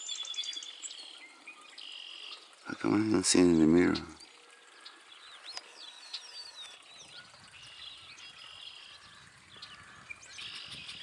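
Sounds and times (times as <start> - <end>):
high steady bird trill: 0.0 - 11.0
songbirds chirping: 0.0 - 11.0.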